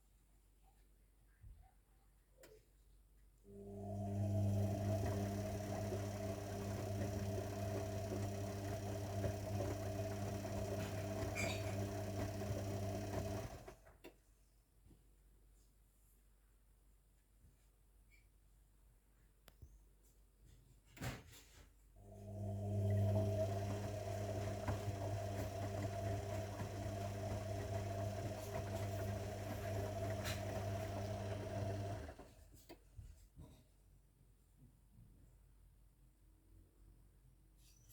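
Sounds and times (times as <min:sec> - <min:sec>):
washing machine humming: 0:03.6 - 0:13.9, 0:22.1 - 0:32.4.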